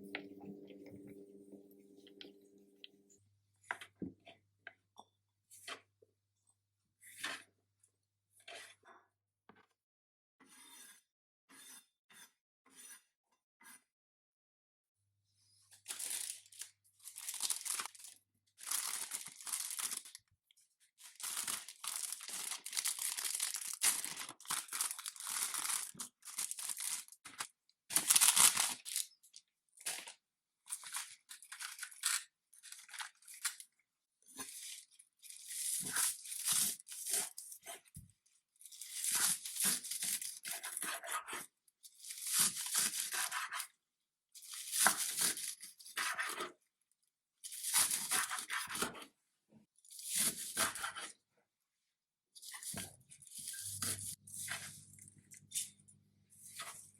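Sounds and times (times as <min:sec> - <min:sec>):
rustling and scraping noise: 0:56.4 - 0:56.9.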